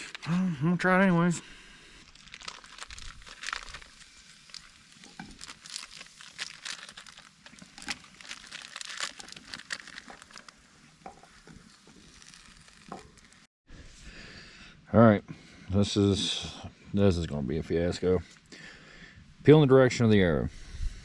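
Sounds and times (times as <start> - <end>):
food packaging crinkling: 2.0 - 13.5.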